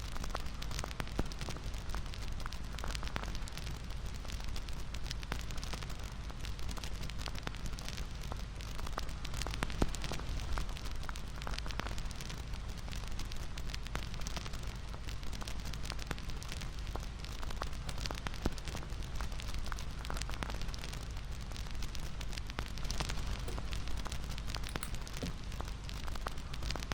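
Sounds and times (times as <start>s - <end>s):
wood fire crackling and popping: 0.1s - 26.9s.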